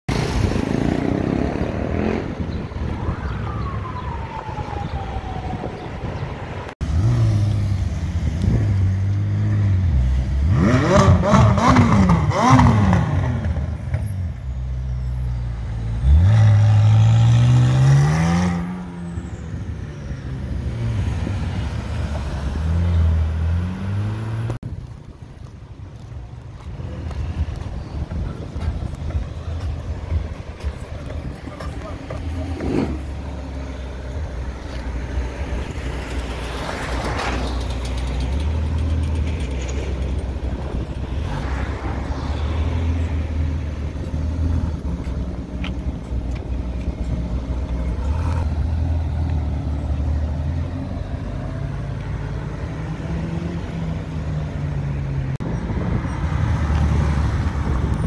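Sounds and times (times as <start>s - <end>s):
car engine revving: 6.8s - 13.8s.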